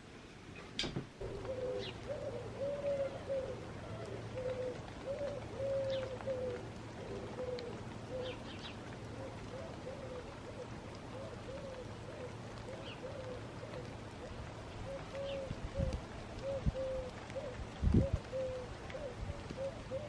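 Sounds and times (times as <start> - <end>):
pigeon cooing: 1.2 - 20.0
small birds chirping: 7.2 - 10.1.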